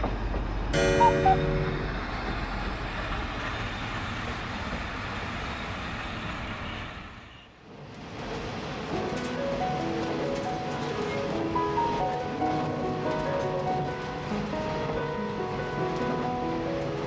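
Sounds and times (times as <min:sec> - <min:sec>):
train engine and wheels rumbling: 0:00.0 - 0:17.0.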